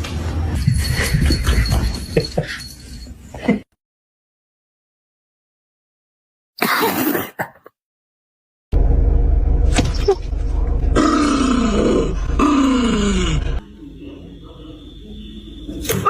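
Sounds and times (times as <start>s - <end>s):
steady low hum: 8.8s - 15.8s.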